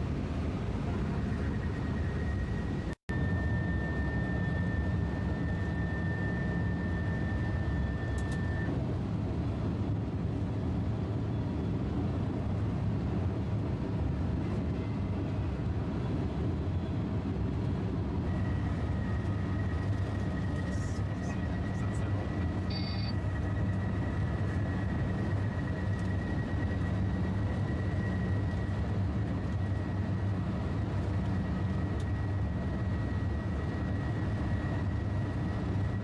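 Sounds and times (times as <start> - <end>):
train cab rumble and rushing: 7.3 - 36.0
thin high whine: 22.6 - 23.7.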